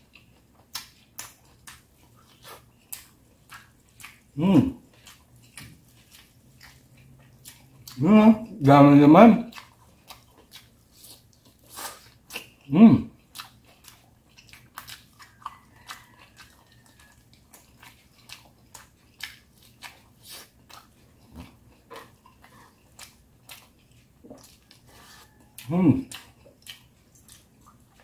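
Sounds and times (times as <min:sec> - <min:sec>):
man chewing: 0:00.0 - 0:28.0
man humming mm: 0:04.4 - 0:04.8, 0:08.0 - 0:08.6, 0:12.7 - 0:13.1, 0:25.6 - 0:26.1.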